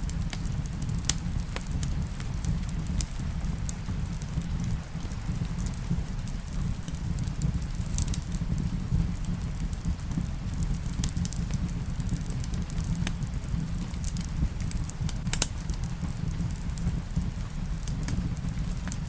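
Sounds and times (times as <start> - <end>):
low rumble of rain: 0.0 - 19.0
wood fire crackling and popping: 0.0 - 19.0.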